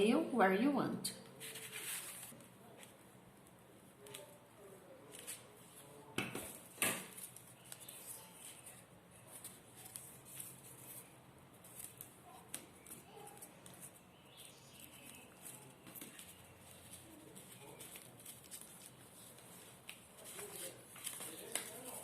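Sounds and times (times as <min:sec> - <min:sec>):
paper rustling and crinkling: 0:01.3 - 0:03.0, 0:05.0 - 0:22.0.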